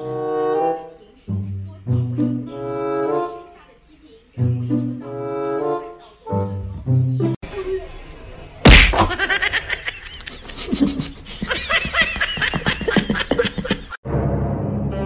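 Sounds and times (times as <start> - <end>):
sudden thump: 8.7 - 9.2
person laughing in high bursts: 8.9 - 14.0.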